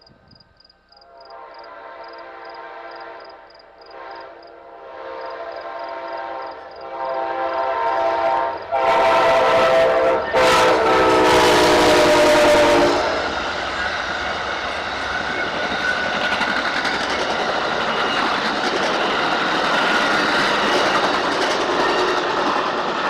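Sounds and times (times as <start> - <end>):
train passing rush: 0.8 - 23.0
locomotive air horn blasts: 1.0 - 13.3.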